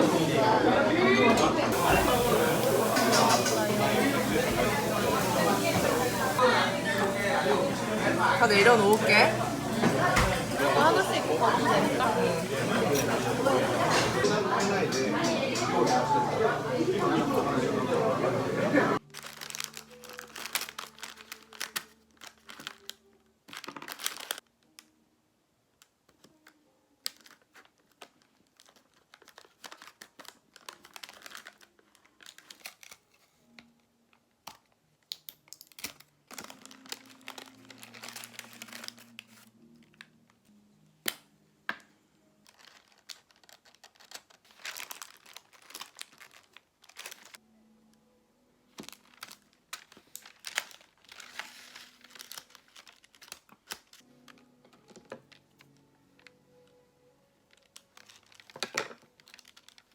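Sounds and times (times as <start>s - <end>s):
wrapping material crinkling and tearing: 19.0s - 25.0s, 25.7s - 41.2s, 42.2s - 59.9s.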